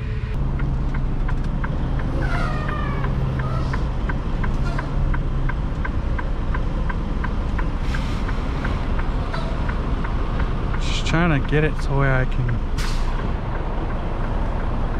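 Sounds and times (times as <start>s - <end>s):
truck engine humming: 0.0s - 14.9s
light ticking: 3.0s - 14.9s.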